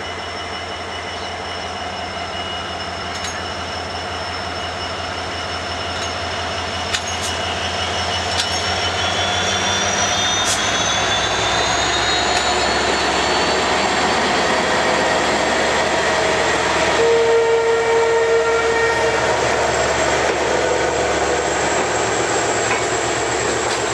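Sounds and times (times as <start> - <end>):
train running on track: 0.0 - 23.9
locomotive horn blast: 16.9 - 19.4.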